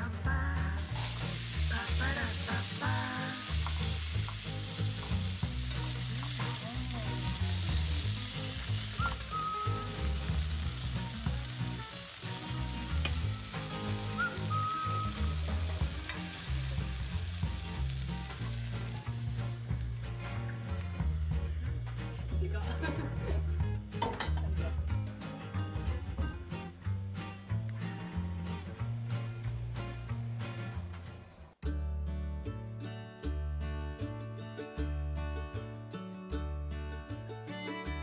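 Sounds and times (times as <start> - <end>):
food sizzling in frying pan: 0.8 - 21.3.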